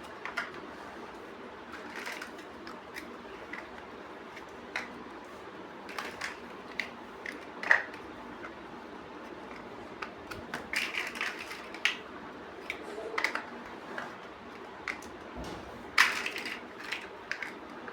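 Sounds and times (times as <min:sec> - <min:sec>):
plastic bricks clicking together: 0:09.5 - 0:12.0, 0:16.0 - 0:17.6.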